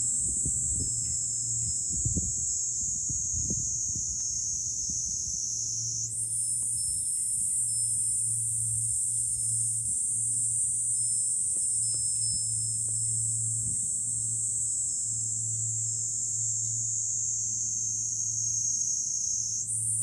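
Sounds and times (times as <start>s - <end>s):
wind buffeting microphone: 0.0s - 5.4s
cicadas singing: 0.0s - 20.0s.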